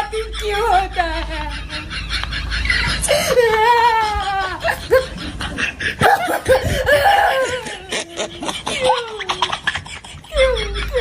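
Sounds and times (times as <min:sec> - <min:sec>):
person laughing: 0:00.0 - 0:11.0.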